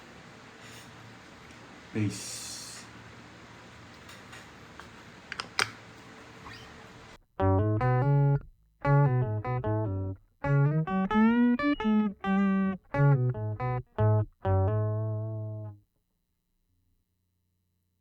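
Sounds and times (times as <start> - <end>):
electric guitar bass riff: 7.4 - 15.8.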